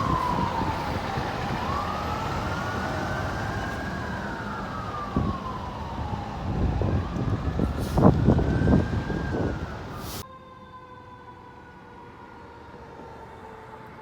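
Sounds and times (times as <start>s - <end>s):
truck rumbling past: 0.0s - 10.2s
fire truck siren wailing: 0.0s - 14.0s.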